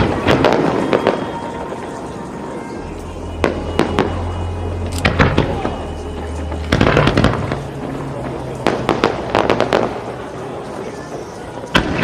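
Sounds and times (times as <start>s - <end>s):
fireworks bangs and crackles: 0.0s - 12.0s
steady low rumble: 1.4s - 11.7s.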